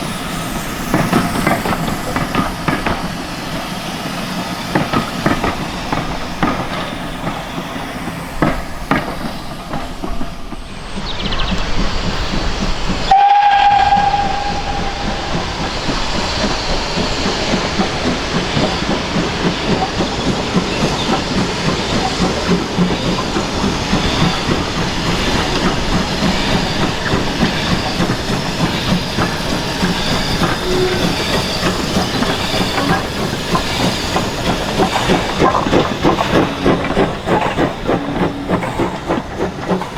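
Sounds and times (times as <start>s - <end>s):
steam locomotive running: 0.0s - 39.9s
steam whistle blast: 13.1s - 15.6s.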